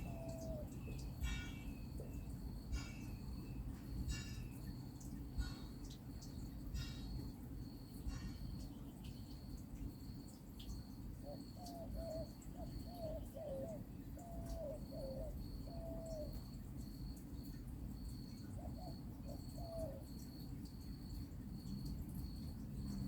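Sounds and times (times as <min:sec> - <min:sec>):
dove cooing: 0:00.0 - 0:01.7, 0:11.2 - 0:16.5, 0:18.4 - 0:20.2
insect chirping: 0:00.0 - 0:23.0.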